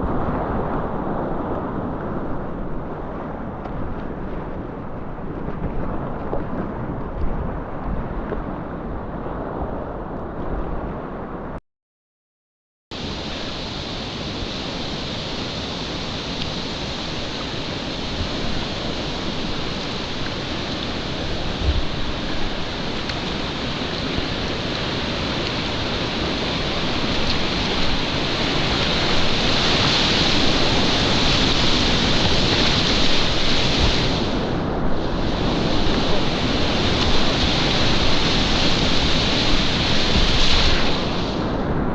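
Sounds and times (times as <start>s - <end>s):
river rushing: 13.0s - 41.9s.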